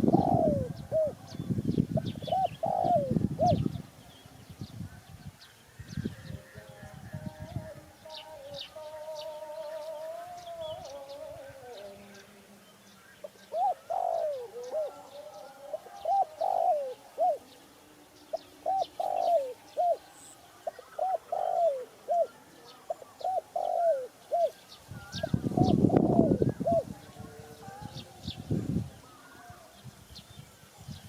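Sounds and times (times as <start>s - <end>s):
dove cooing: 0.0s - 4.2s, 13.2s - 17.6s, 18.3s - 29.7s.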